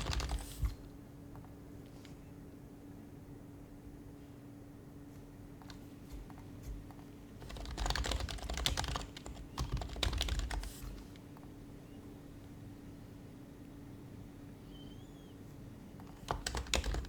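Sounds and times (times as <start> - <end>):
quiet keyboard typing: 0.0 - 1.6, 5.6 - 11.5, 16.0 - 17.0.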